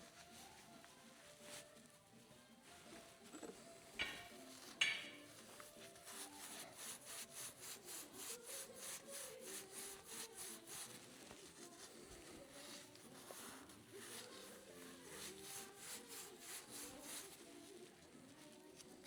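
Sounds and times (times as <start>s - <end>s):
sharp ringing knocks: 4.0s - 5.3s
quick rubbing strokes: 5.7s - 17.5s.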